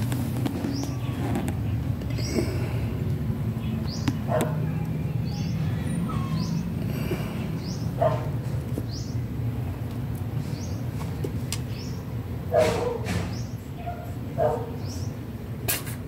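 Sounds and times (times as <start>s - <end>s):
steady low hum: 0.0s - 12.6s
small bird chirping: 5.2s - 6.8s.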